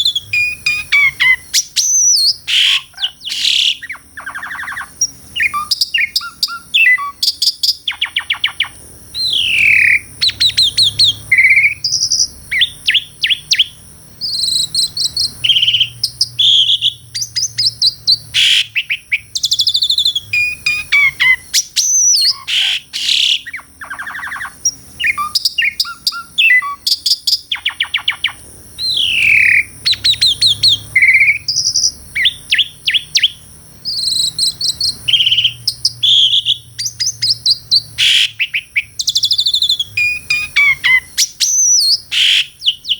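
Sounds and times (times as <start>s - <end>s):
starling singing: 0.0s - 42.9s.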